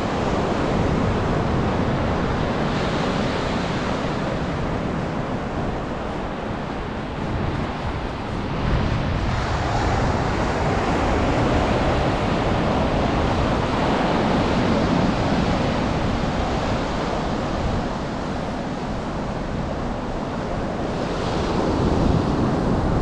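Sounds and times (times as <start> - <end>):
surf washing onto a beach: 0.0 - 23.0
wind gusting on microphone: 0.0 - 23.0.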